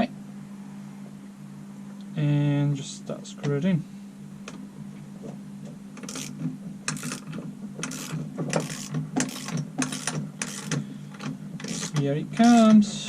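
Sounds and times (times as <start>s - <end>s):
steady low hum: 0.0s - 13.0s
ratchet clicking: 6.0s - 12.8s.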